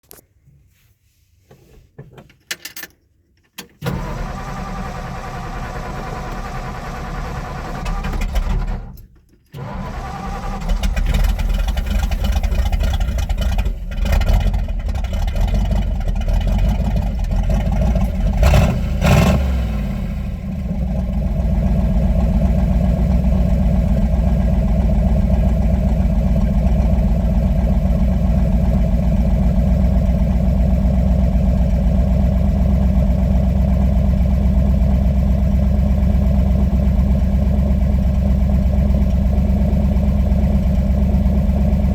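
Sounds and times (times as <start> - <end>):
car engine cranking: 3.7 - 28.7
car engine idling: 3.9 - 8.3, 9.6 - 41.9
car engine revving unevenly: 17.6 - 21.7.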